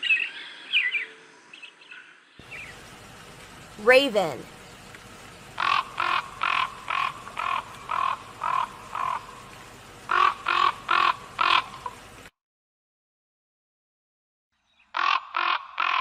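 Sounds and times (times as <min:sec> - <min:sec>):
raven croaking: 0:05.5 - 0:12.0, 0:14.9 - 0:16.0.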